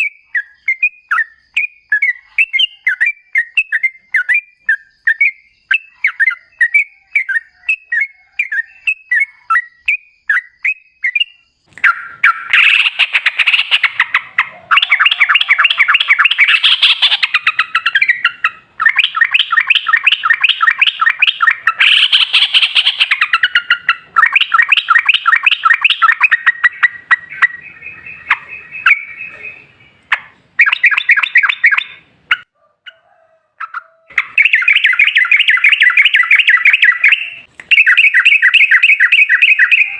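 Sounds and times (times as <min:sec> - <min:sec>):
bird chirps: 0:00.0 - 0:39.9
rapid chattering bird song: 0:00.0 - 0:39.9.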